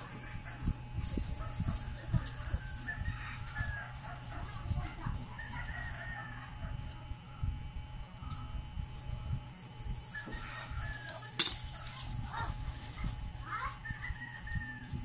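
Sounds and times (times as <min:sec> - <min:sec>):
pliers knocking and handling noise: 0:11.4 - 0:11.7.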